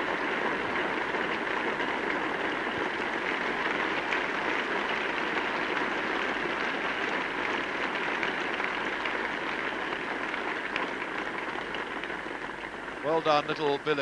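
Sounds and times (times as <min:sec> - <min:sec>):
crowd applauding: 0:00.0 - 0:14.0.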